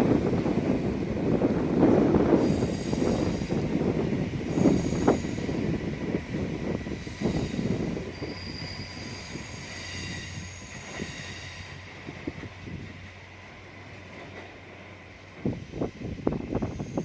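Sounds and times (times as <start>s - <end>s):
train wheels squealing on rails: 1.7s - 17.0s.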